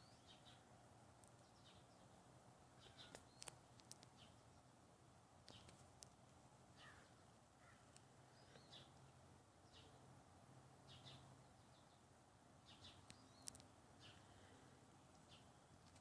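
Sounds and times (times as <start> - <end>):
faint bird chirps: 0.0 - 0.7, 1.3 - 4.8, 6.7 - 10.1, 10.8 - 15.7
low steady hum: 0.0 - 16.0.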